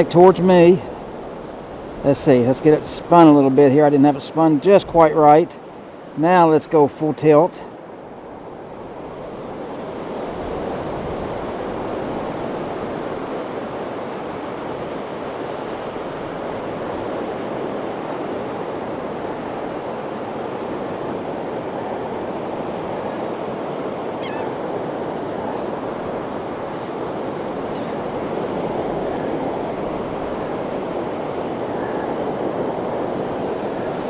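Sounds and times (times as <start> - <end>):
surf breaking on beach: 0.0 - 34.0
wind on microphone: 8.1 - 34.0.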